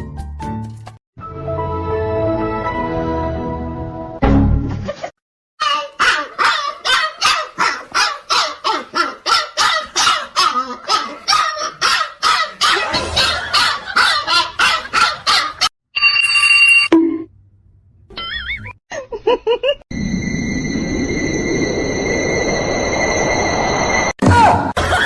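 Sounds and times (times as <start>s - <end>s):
dog barking: 6.0s - 15.7s.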